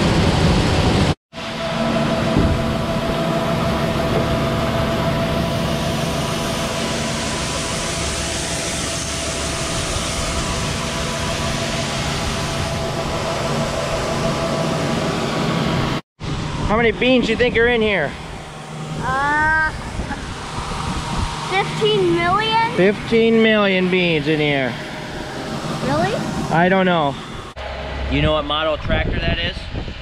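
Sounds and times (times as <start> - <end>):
machinery motor hum: 0.0 - 29.4
steady machine tones: 0.1 - 29.9.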